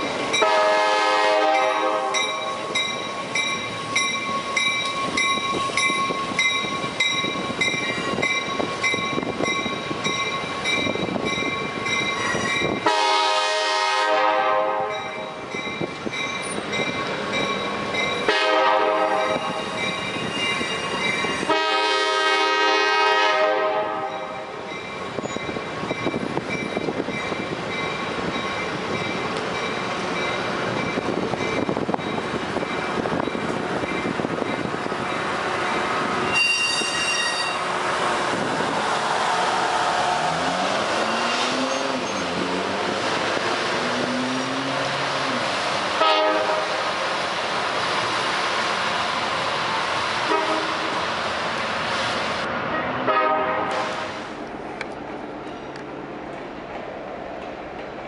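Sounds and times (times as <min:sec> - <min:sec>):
train running on rails: 0:00.0 - 0:58.0
train horn blasts: 0:00.4 - 0:02.5, 0:12.8 - 0:15.2, 0:18.3 - 0:19.6, 0:21.4 - 0:24.4, 0:36.3 - 0:37.7, 0:46.0 - 0:46.8, 0:50.2 - 0:50.9, 0:52.7 - 0:54.1
bell ringing steadily: 0:02.2 - 0:12.7.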